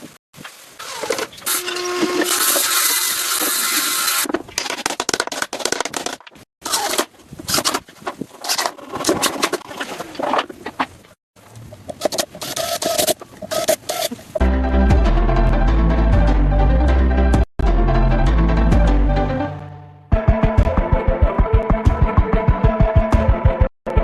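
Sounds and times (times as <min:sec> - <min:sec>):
power tool running: 0:01.0 - 0:04.3.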